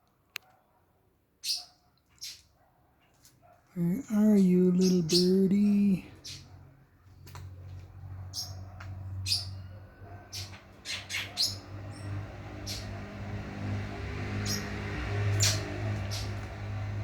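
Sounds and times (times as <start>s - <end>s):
bird chirping: 3.8s - 6.5s, 9.2s - 13.1s, 14.3s - 16.8s.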